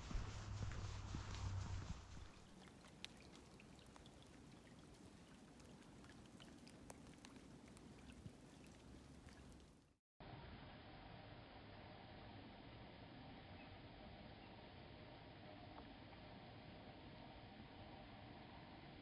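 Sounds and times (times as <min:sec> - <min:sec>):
quiet hiss: 0:00.0 - 0:09.9
water drops ticking: 0:02.3 - 0:09.8.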